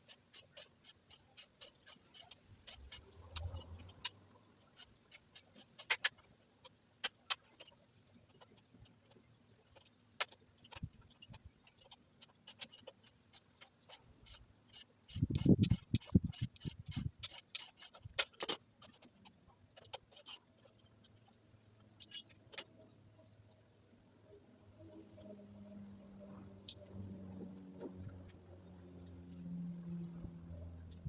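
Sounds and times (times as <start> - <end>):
ratchet wrench clicking: 0.0 - 4.2, 4.8 - 6.1, 11.8 - 18.6.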